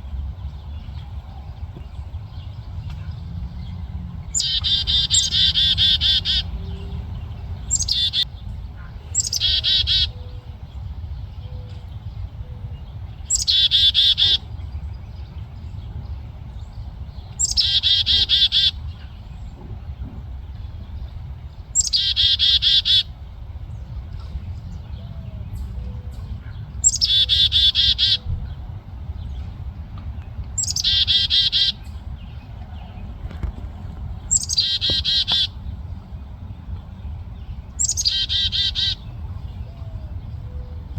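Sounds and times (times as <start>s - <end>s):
low rumble: 0.0s - 9.2s
nestling birds chirping: 0.2s - 40.9s.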